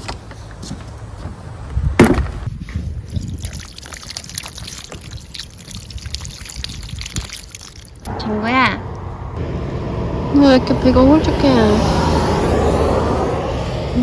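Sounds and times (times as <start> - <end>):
loud knock: 2.0 - 2.4
liquid trickling and pouring: 2.9 - 8.1
small crackles: 3.1 - 8.1.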